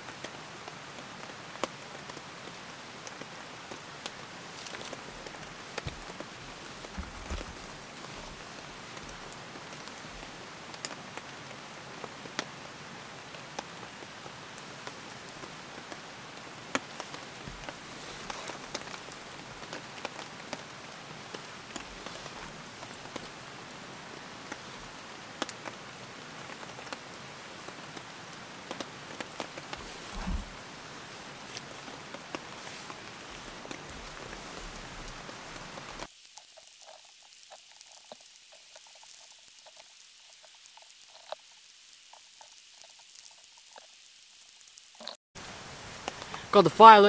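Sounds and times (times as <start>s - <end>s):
steady rain falling: 0.0s - 47.0s
dull low thump: 29.8s - 30.6s.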